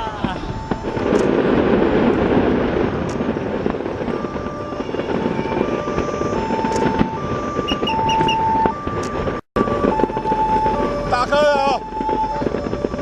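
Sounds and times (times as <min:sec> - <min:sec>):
fireworks rumbling: 0:00.0 - 0:13.0
sharp firework cracks: 0:00.0 - 0:13.0
whistle-like tones: 0:06.3 - 0:08.8.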